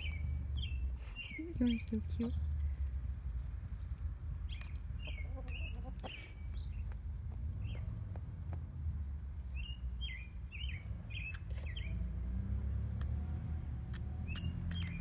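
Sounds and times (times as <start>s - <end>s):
high falling bird chirps: 0.0s - 2.8s, 9.5s - 12.0s
steady low rumble: 0.0s - 12.1s.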